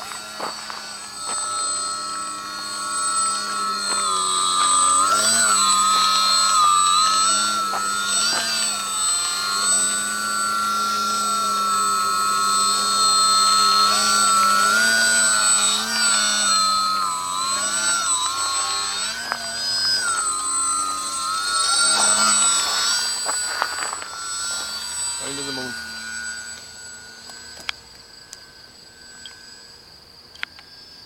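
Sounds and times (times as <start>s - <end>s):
model airplane motor whine: 0.0s - 31.0s.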